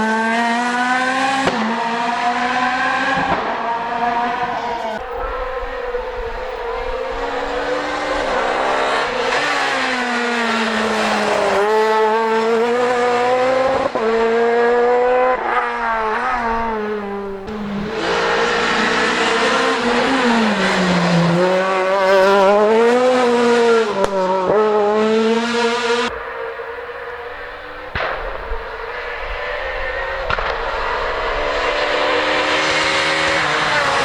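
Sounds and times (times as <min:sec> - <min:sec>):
rally car engine revving: 0:00.0 - 0:34.0
sharp cracks: 0:26.1 - 0:33.0.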